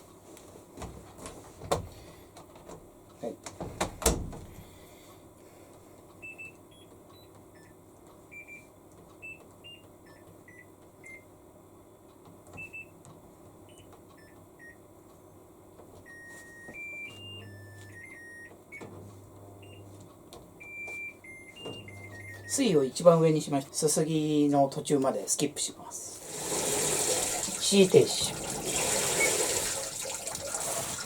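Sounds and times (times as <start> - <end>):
washing machine control panel beeps: 6.2 - 11.3, 12.6 - 13.0, 13.7 - 14.8, 16.0 - 18.9, 19.6 - 19.9, 20.6 - 22.9, 27.4 - 30.2.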